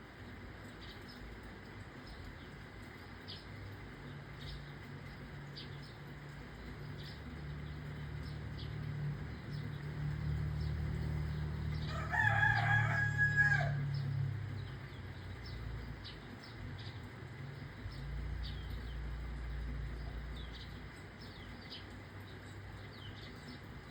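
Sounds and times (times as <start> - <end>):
low background noise: 0.0 - 23.9
small birds chirping: 0.0 - 23.9
rooster crowing: 11.8 - 14.1.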